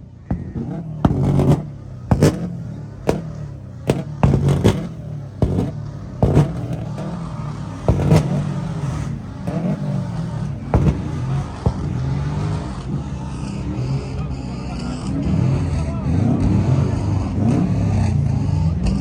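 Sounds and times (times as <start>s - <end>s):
exhaust pops and bangs: 0.0s - 14.2s
car engine rumbling: 0.0s - 18.6s.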